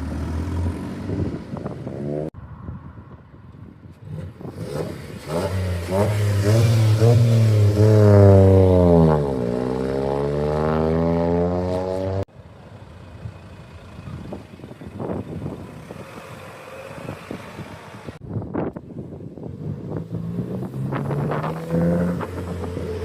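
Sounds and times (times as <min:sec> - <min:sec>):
car engine accelerating: 0:04.0 - 0:12.3, 0:19.5 - 0:23.0.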